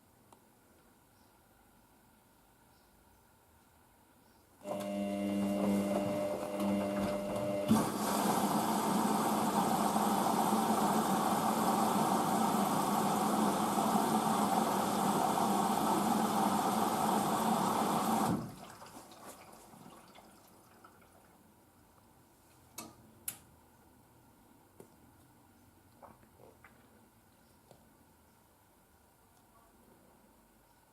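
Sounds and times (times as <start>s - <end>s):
washing machine hum: 4.6s - 21.5s
water pouring into washing machine: 4.8s - 21.4s.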